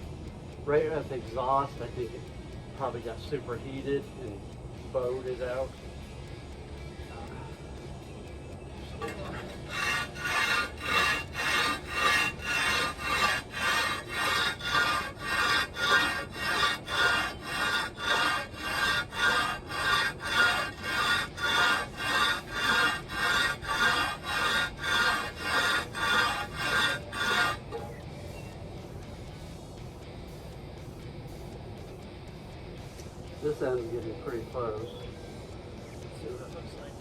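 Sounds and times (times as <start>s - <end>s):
metal scraping on abrasive surface: 8.8s - 28.6s.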